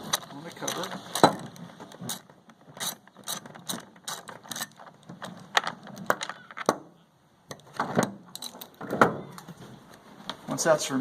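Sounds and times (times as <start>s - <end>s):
ratcheting wrench clicking: 2.0s - 4.8s.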